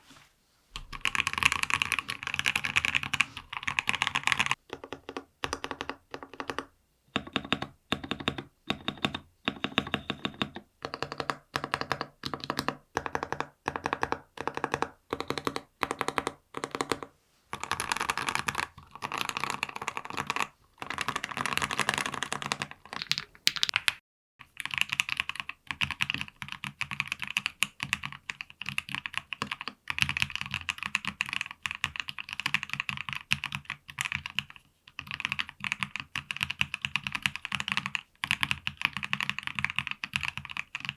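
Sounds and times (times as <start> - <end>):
long keyboard keys pressed: 0.8 - 24.0
fast typing on keyboard: 0.8 - 40.9.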